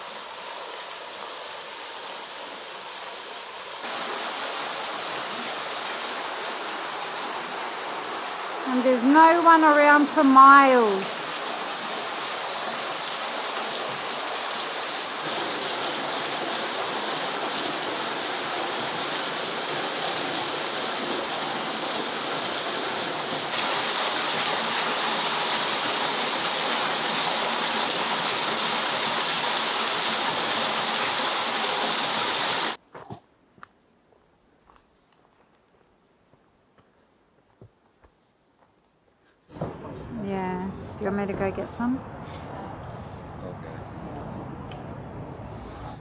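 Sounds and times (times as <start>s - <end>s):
waterfall rushing and splashing: 0.0s - 32.8s.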